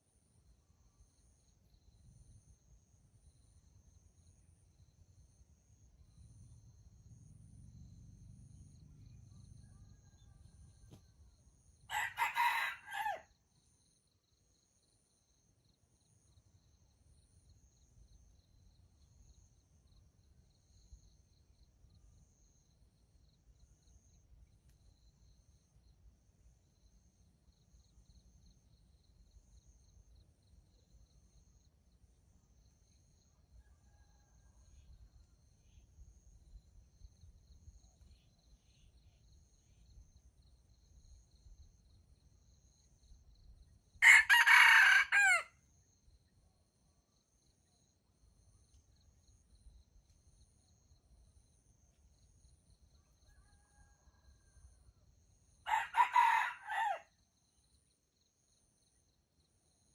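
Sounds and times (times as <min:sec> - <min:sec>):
rooster crowing: 0:11.9 - 0:13.3, 0:44.0 - 0:45.5, 0:55.7 - 0:57.1.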